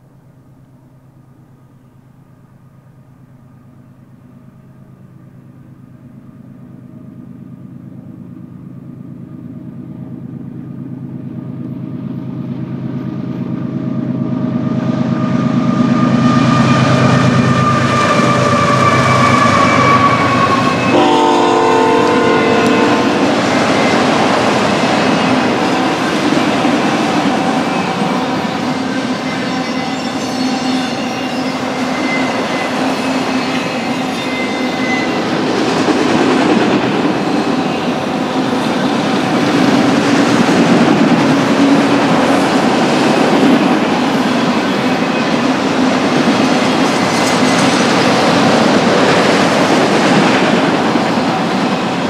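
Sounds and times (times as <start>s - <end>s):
diesel locomotives approaching: 0.0s - 52.0s
train horn blast: 16.0s - 24.2s.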